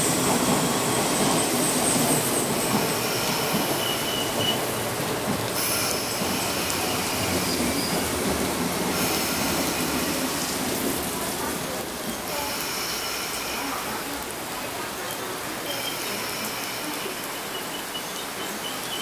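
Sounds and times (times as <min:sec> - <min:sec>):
train wheels rushing on rail: 0:00.0 - 0:19.0.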